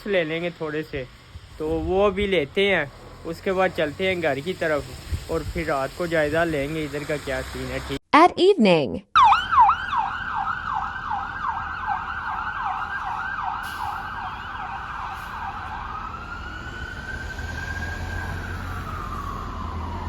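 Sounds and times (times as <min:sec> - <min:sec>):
low traffic rumble: 0:00.0 - 0:08.0, 0:09.3 - 0:20.0
emergency vehicle siren: 0:09.2 - 0:20.0.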